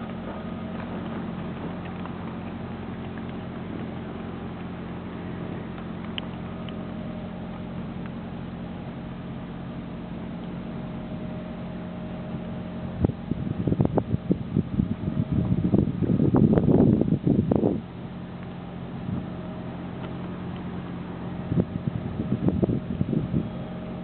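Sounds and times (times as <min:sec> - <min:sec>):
bumps and rustles: 0:00.0 - 0:08.4
car engine humming: 0:00.0 - 0:24.0.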